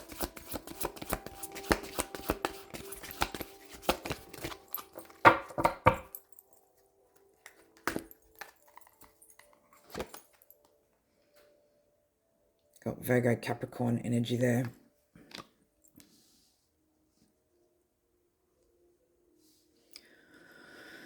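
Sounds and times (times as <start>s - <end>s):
cards being shuffled: 0.0s - 6.0s, 7.5s - 9.1s, 9.8s - 10.3s
cards tapped down: 0.0s - 6.2s, 7.8s - 8.7s.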